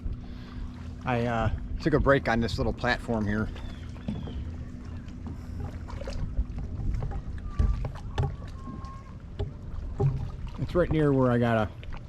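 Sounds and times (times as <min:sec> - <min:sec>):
faint steady hum: 0:00.0 - 0:12.0
low wind: 0:00.0 - 0:12.0
water noise: 0:00.0 - 0:12.0.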